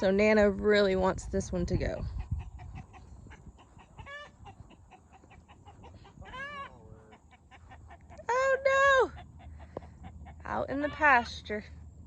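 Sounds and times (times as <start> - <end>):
chickens clucking: 1.1 - 11.2
drawn-out chicken call: 1.8 - 11.3
chicken squawk: 2.2 - 8.2.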